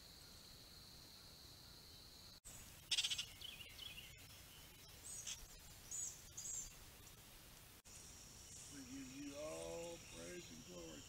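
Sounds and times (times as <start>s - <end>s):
high bird chirps: 2.9s - 6.8s.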